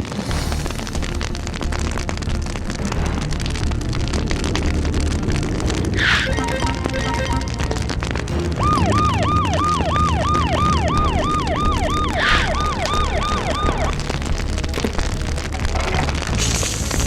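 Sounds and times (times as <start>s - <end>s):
background music: 0.0s - 17.0s
emergency vehicle siren wailing: 6.0s - 14.4s.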